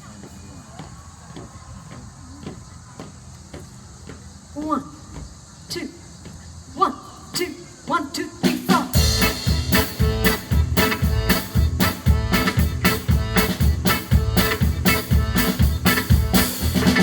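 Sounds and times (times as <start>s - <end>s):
live band playing dance music: 8.4s - 17.0s
count-in: 9.0s - 17.0s.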